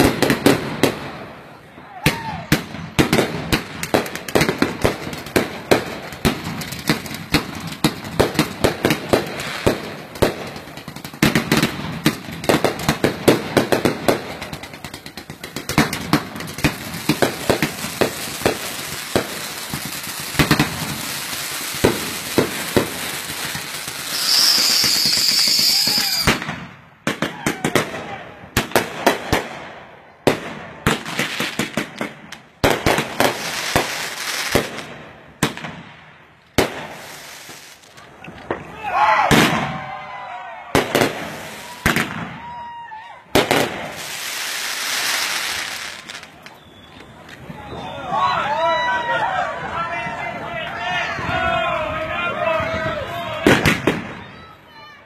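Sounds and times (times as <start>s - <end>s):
fireworks bangs and crackling: 0.0s - 49.0s, 49.6s - 54.7s
firework high hiss: 12.7s - 26.4s, 36.7s - 38.0s, 43.6s - 46.6s.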